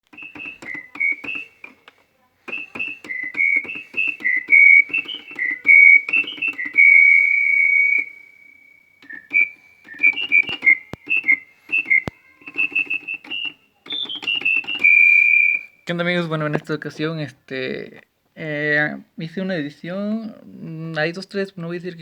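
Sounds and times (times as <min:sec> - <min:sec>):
synthesizer whistle melody: 0:00.1 - 0:01.8, 0:02.5 - 0:15.8.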